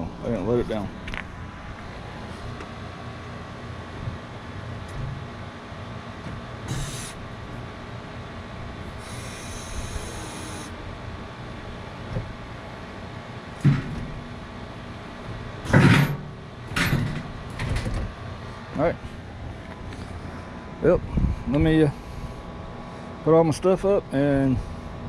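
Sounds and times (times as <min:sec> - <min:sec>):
loud knocks and clunks: 0:13.6 - 0:14.2, 0:15.6 - 0:18.1.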